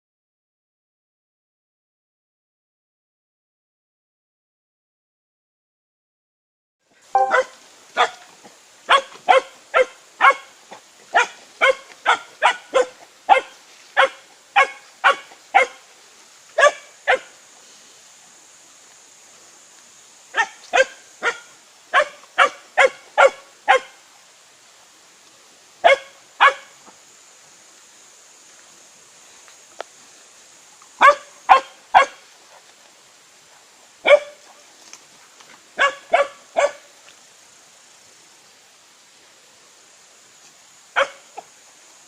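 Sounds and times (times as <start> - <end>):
puppy barking: 7.2 - 8.3, 8.9 - 10.5, 11.1 - 15.8, 16.6 - 17.3, 20.4 - 24.0, 25.8 - 26.8, 31.0 - 32.2, 34.0 - 34.4, 35.8 - 36.8, 41.0 - 41.5.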